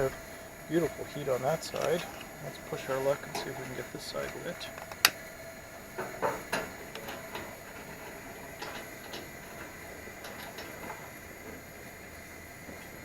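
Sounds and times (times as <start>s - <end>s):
stove burner hissing: 0.0s - 13.0s
clicks and knocks from controls: 4.3s - 5.2s.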